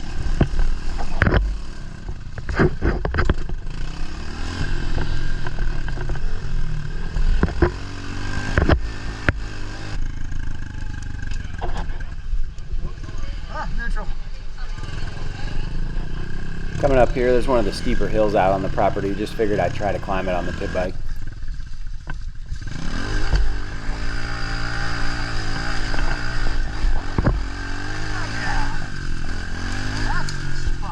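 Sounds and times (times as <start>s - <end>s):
motorbike engine revving: 0.0s - 11.7s, 14.6s - 30.9s
bike knocking and rattling: 0.2s - 3.8s.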